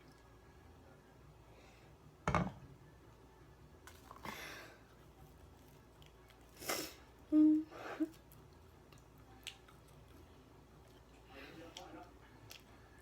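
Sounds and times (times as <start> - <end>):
person humming mm: 7.3 - 7.7.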